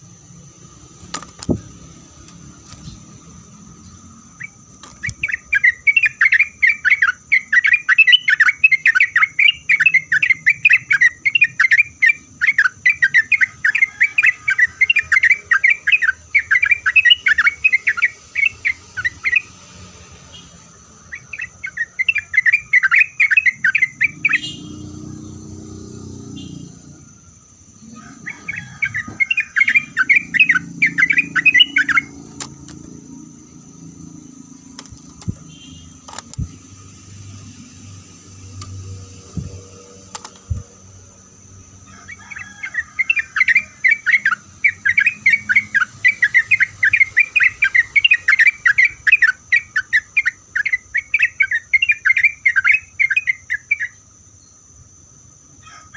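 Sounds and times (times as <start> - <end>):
bird singing bubbling chatter: 2.7 - 19.5, 27.2 - 36.9.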